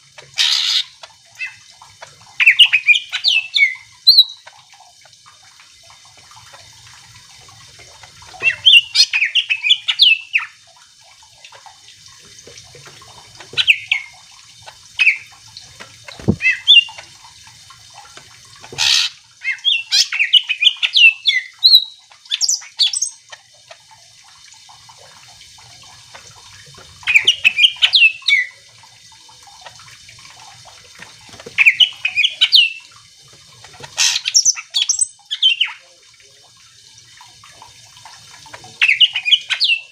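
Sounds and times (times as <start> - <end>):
bird singing rapid chirps and trills: 2.4 - 4.5, 8.3 - 10.6, 15.0 - 15.3, 18.8 - 23.3, 27.0 - 28.6, 31.6 - 32.8, 34.0 - 35.8, 38.8 - 39.9.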